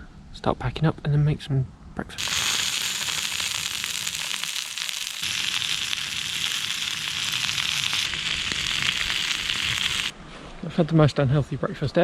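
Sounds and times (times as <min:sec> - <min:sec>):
food sizzling in a pan: 0:02.2 - 0:10.1.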